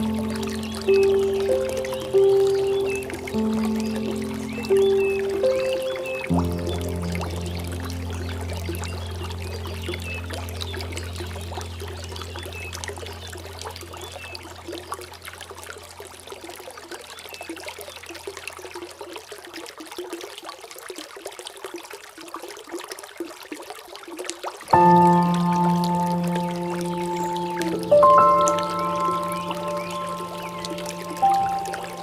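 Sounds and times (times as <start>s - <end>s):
low musical drone: 0.0s - 13.6s, 24.8s - 32.0s
water flowing and trickling: 0.0s - 32.0s.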